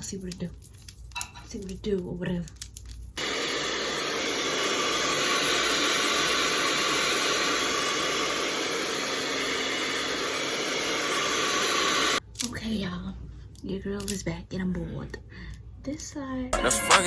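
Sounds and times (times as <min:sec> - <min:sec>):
blow dryer running: 0:03.2 - 0:12.2.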